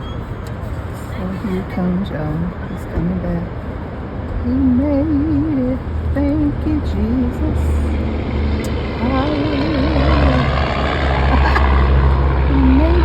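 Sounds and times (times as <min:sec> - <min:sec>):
low drone: 0:04.6 - 0:13.0
person humming: 0:12.4 - 0:13.0.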